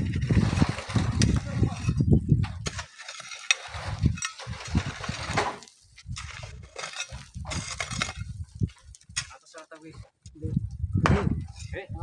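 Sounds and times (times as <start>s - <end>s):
wind rumbling on microphone: 0.0s - 2.9s, 3.6s - 9.3s, 9.9s - 12.0s
sand being shovelled and sieved: 0.0s - 8.6s.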